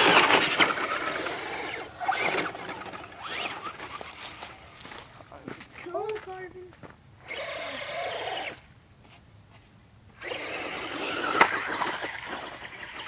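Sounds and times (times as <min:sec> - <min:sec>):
electric motor whining: 0:00.0 - 0:04.4, 0:07.2 - 0:08.6, 0:10.2 - 0:13.0.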